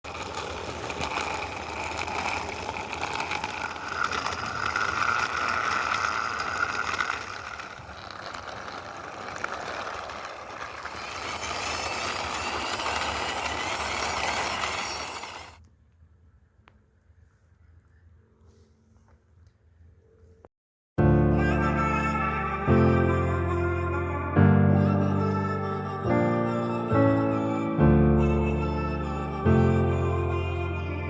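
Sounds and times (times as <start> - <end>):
toy cars rolling on hard surface: 0.0 - 15.6.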